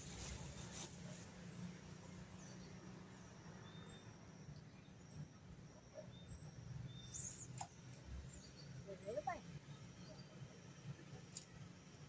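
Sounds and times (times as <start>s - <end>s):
faint high bird chirps: 2.4s - 10.4s.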